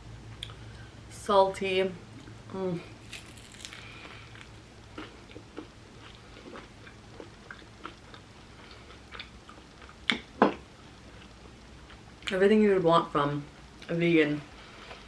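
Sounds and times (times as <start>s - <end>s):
chewing food: 3.0s - 12.4s.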